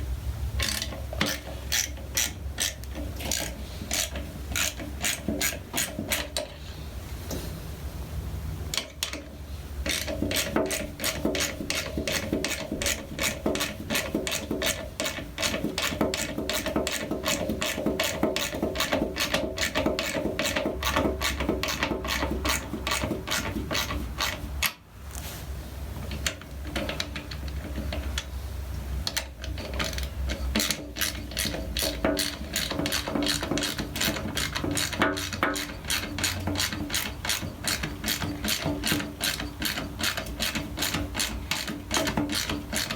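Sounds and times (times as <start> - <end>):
ratchet wrench clicking: 0.6 - 6.5, 8.8 - 24.8, 29.1 - 42.9.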